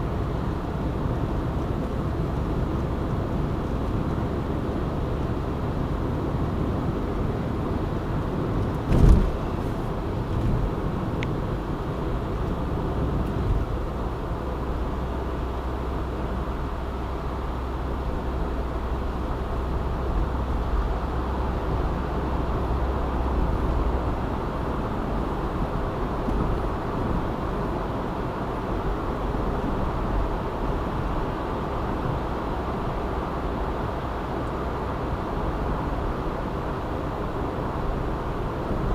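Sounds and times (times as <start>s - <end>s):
car engine and tyre rumble: 0.0s - 38.9s
sharp thump: 8.8s - 9.6s.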